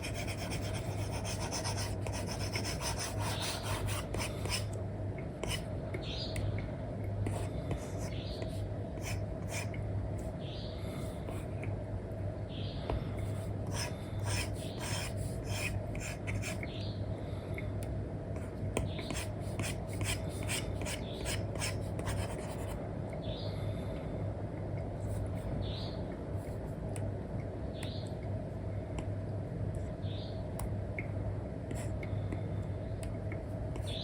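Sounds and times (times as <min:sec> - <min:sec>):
stylus scratching and tapping screen: 0:00.0 - 0:04.7
steady low hum: 0:00.0 - 0:34.0.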